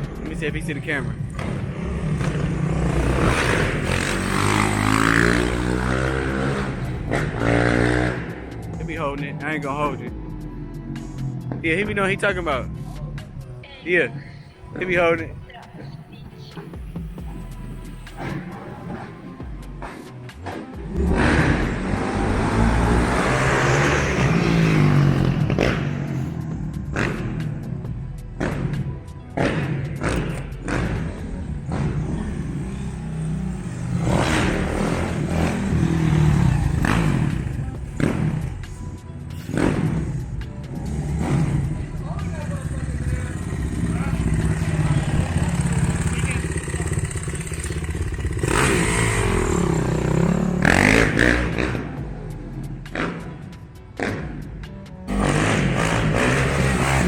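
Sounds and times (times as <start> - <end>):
dirt bike engine revving: 1.3 - 8.6, 20.8 - 26.2, 29.4 - 38.6, 39.5 - 52.0, 55.1 - 57.0.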